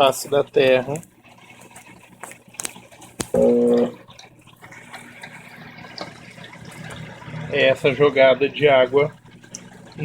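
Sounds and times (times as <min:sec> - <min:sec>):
washing machine spraying water: 0:00.0 - 0:10.0
short loud tone: 0:03.4 - 0:04.0.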